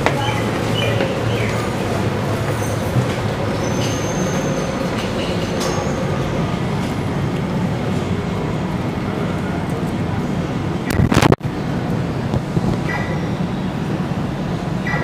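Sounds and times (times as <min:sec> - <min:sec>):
train rumble: 0:00.0 - 0:15.0
wheel squeal: 0:02.5 - 0:04.7.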